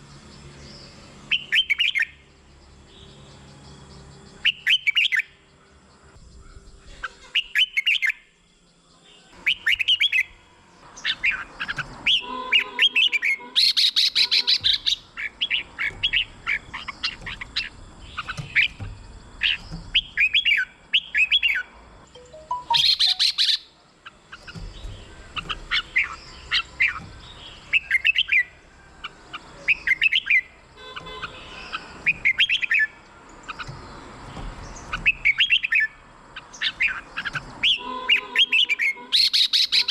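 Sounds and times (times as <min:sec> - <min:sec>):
bulbuls singing whistled phrases: 0:01.2 - 0:02.3, 0:02.9 - 0:39.9
harsh bird chattering: 0:11.0 - 0:21.6, 0:22.4 - 0:28.5, 0:34.9 - 0:39.9.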